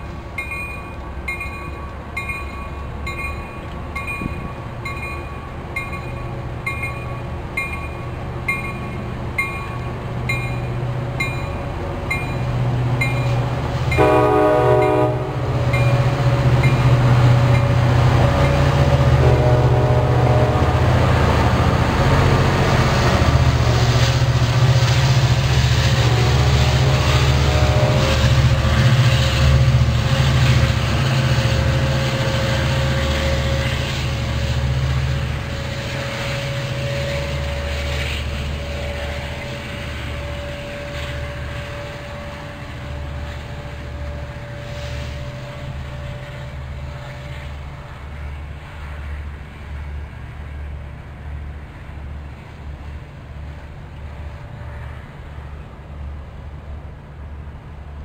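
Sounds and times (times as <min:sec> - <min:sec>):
diesel locomotive engine and wheels: 0:00.0 - 0:58.0
train horn blast: 0:13.9 - 0:16.4, 0:17.6 - 0:22.9, 0:25.7 - 0:29.5, 0:35.4 - 0:47.6.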